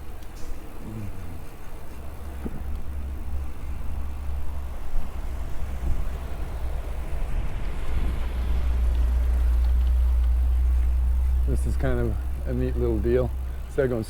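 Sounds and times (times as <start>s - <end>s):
faint ticks: 0.0s - 3.5s, 7.5s - 14.0s
bike tyre noise on pavement: 0.0s - 14.0s
wind rumble on microphone: 1.4s - 13.4s.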